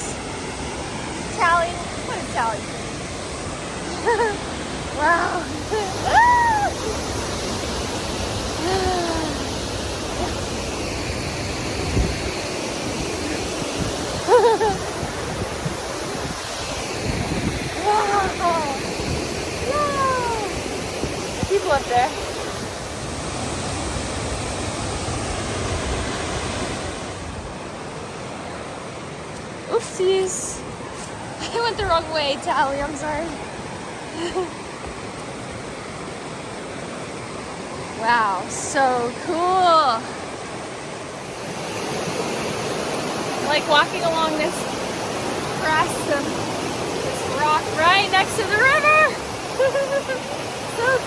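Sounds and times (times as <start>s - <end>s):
waterfall and river rushing: 0.0s - 51.0s.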